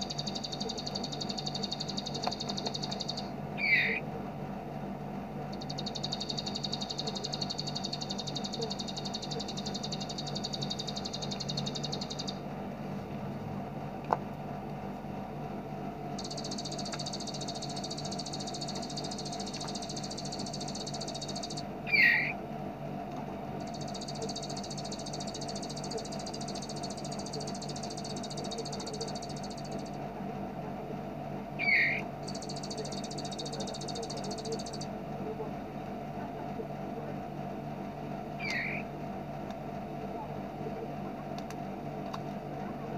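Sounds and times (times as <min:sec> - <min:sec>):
bird buzzy trill: 0:00.0 - 0:04.0, 0:05.5 - 0:12.4, 0:16.2 - 0:22.4, 0:23.6 - 0:30.0, 0:31.6 - 0:34.9, 0:38.4 - 0:38.9.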